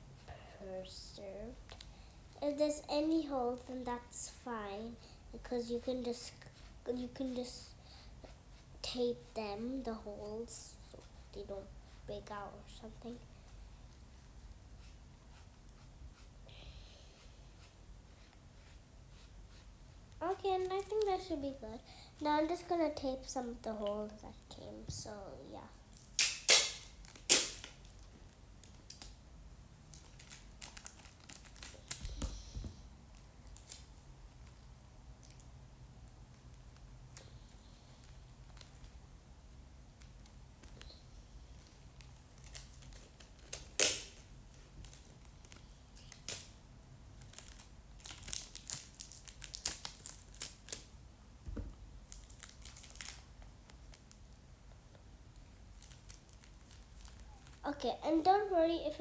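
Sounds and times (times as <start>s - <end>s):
sticky tape ripping off roll: 26.0s - 27.9s, 42.4s - 45.1s
paper crinkling: 29.9s - 32.3s
tape crinkling on tissue paper: 29.9s - 35.5s, 40.0s - 46.6s, 47.2s - 51.0s, 52.0s - 54.5s, 55.3s - 57.6s
soft thump: 51.4s - 51.8s.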